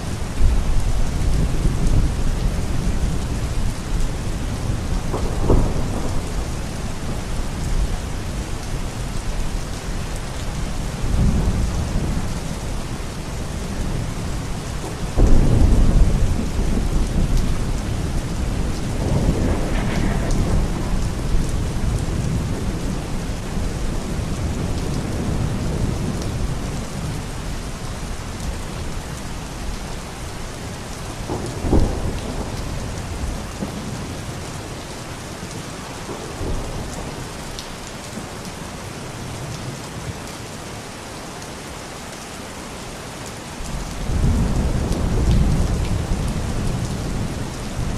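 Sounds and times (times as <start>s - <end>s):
steady rain falling: 0.0s - 47.9s
thunder rolling: 4.6s - 8.1s, 15.1s - 26.7s, 31.1s - 33.8s
sharp thunder crack: 5.1s - 6.5s, 18.6s - 22.7s.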